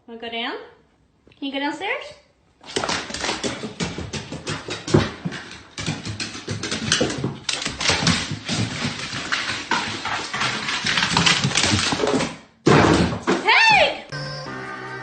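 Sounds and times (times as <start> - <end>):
dog claws clicking and scuffing: 2.6 - 12.4.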